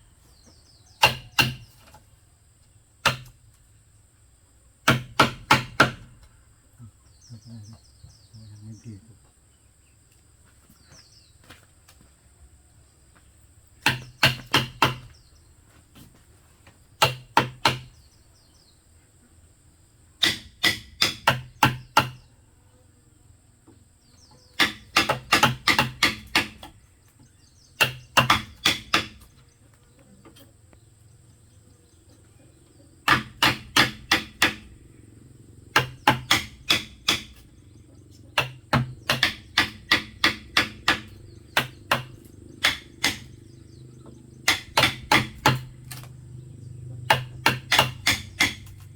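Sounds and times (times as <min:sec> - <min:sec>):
sharp strikes on bamboo: 0:01.0 - 0:02.0, 0:03.0 - 0:03.4, 0:04.8 - 0:06.3, 0:13.8 - 0:15.2, 0:17.0 - 0:17.9, 0:20.2 - 0:22.3, 0:24.6 - 0:26.8, 0:27.8 - 0:29.4, 0:33.0 - 0:34.7, 0:35.7 - 0:37.5, 0:38.4 - 0:43.4, 0:44.4 - 0:46.2, 0:47.1 - 0:48.9.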